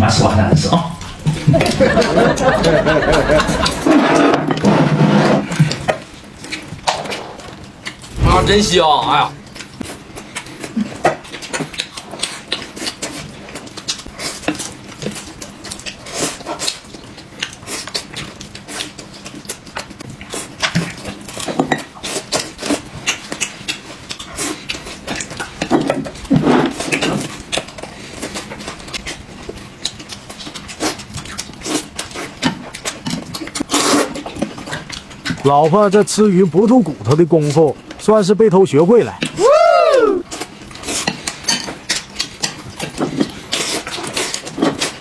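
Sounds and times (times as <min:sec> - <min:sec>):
loud chewing and lip-smacking: 0:00.9 - 0:04.8, 0:05.4 - 0:08.2, 0:09.4 - 0:38.0, 0:39.1 - 0:45.0
murmurs of enjoyment: 0:01.2 - 0:03.9, 0:39.4 - 0:40.2
utensils clicking against dishes: 0:40.8 - 0:45.0.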